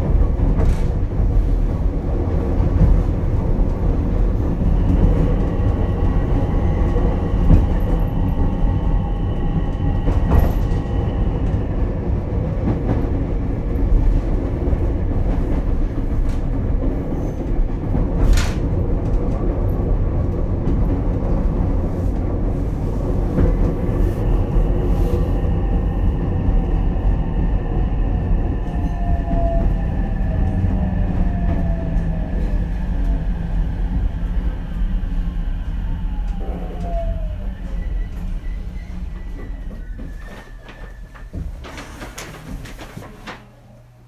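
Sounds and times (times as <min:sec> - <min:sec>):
train wheels rumbling on rail: 0:00.0 - 0:43.6.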